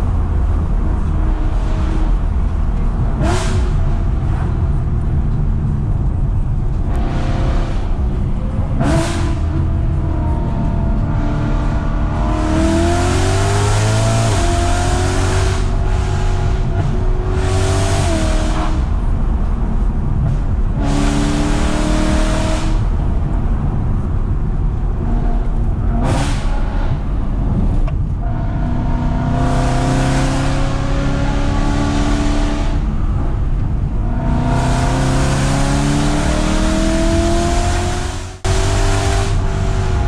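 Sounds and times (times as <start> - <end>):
car engine revving: 0.0 - 40.0.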